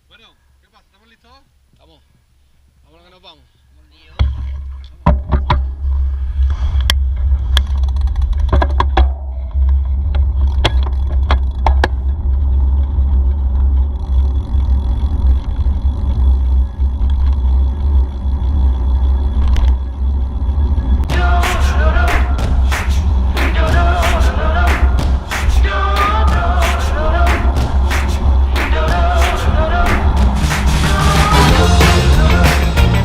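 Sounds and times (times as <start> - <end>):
bike clicking and rattling: 4.2 - 21.1.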